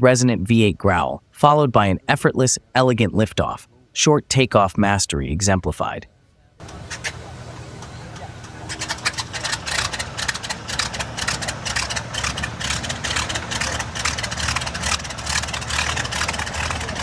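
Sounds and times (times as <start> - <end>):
aircraft engine running: 6.6 - 17.0.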